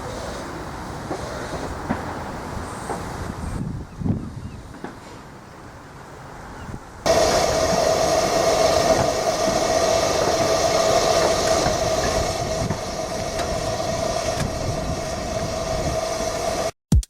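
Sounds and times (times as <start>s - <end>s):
train wheel and track noise: 0.0s - 16.7s
steady train tone: 7.1s - 16.8s.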